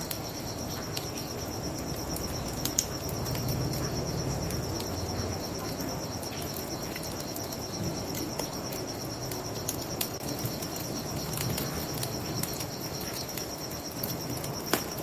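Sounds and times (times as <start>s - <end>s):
bonfire popping and crackling: 0.0s - 15.0s
crickets trilling: 0.0s - 15.0s.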